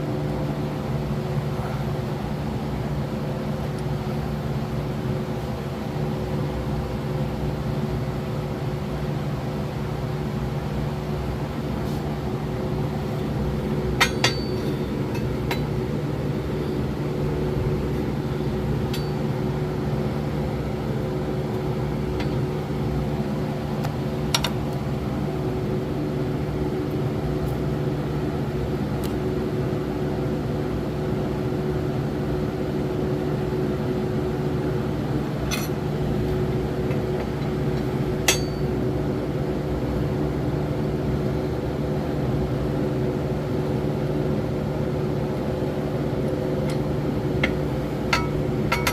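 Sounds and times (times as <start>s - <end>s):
mechanical hum: 0.0s - 48.9s.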